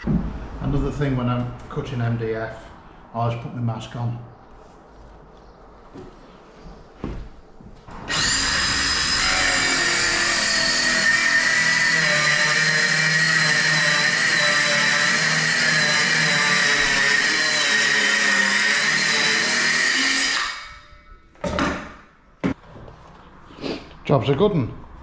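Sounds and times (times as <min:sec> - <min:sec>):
circular saw cutting board: 0:07.9 - 0:20.9.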